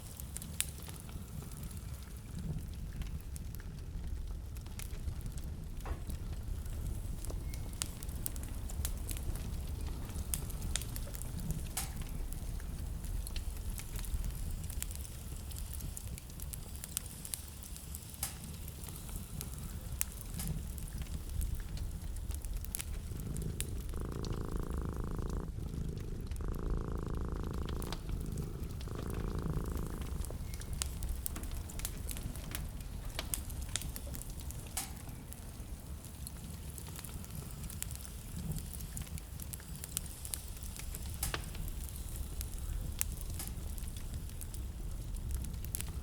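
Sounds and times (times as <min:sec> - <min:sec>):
wood fire crackling: 0:00.0 - 0:46.0
low steady rumble: 0:19.4 - 0:34.6.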